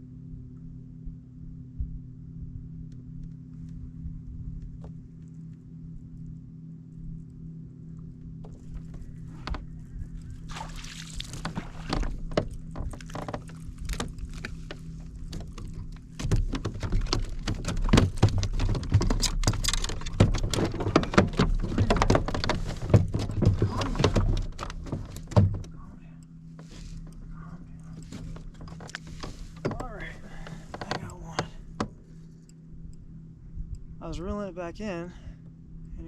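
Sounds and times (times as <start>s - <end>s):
low hum: 0.0s - 36.0s
knocking on plastic kayak hull: 15.3s - 25.6s.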